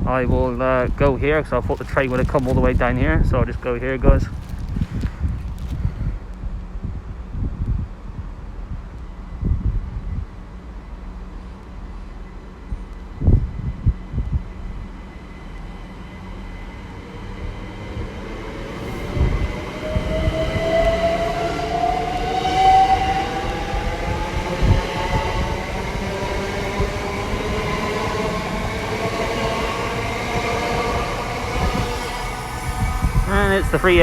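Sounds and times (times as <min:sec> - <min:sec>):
low rail rumble: 0:00.0 - 0:34.0
electric train motors whining: 0:14.7 - 0:34.0.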